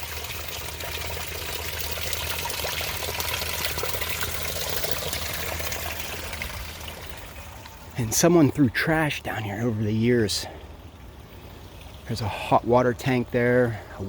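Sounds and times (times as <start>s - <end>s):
spring water running: 0.0s - 14.0s.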